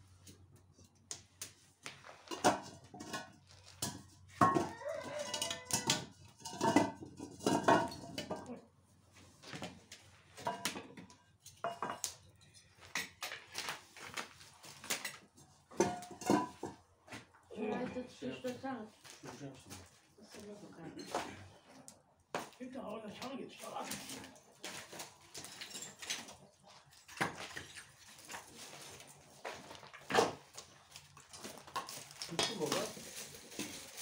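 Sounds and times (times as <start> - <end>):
metal objects clattering: 2.2 - 8.6, 14.7 - 16.9, 23.9 - 34.0.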